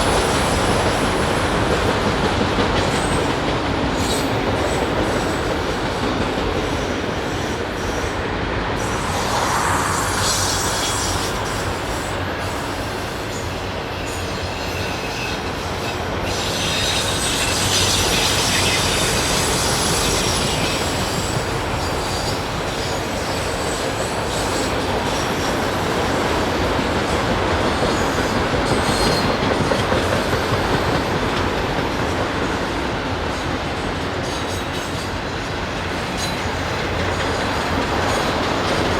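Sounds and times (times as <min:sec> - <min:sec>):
train wheels rumbling on rail: 0:00.0 - 0:38.9
wheel squeal: 0:08.8 - 0:25.8.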